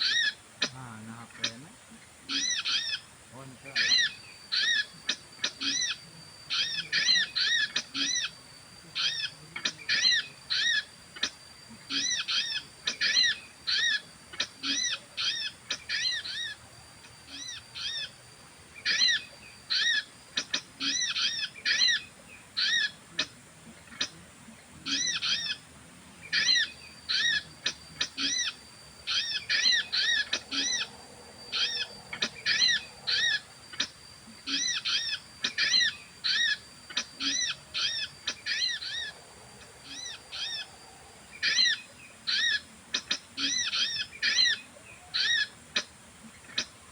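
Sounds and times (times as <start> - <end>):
whistled bird calls: 0.0 - 25.6, 26.2 - 39.2, 39.8 - 46.9
faint steady high tone: 15.9 - 46.9.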